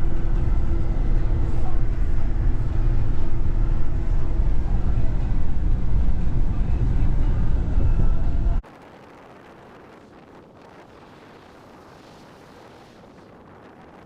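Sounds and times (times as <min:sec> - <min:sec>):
road and engine rumble in cab: 0:00.0 - 0:08.6.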